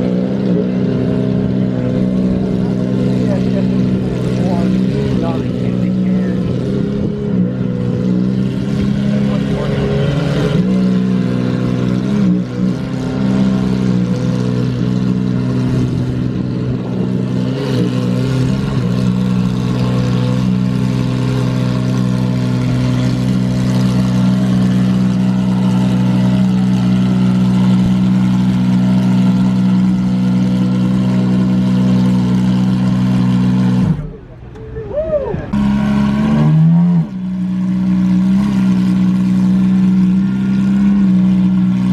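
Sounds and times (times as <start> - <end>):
car engine running: 0.0 - 41.9.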